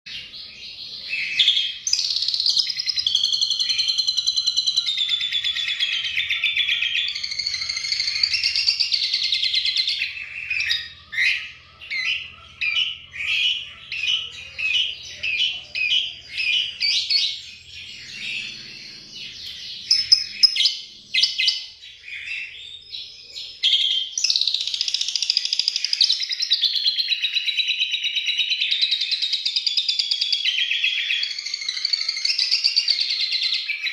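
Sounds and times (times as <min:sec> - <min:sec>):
starling chattering song: 0:00.2 - 0:22.6.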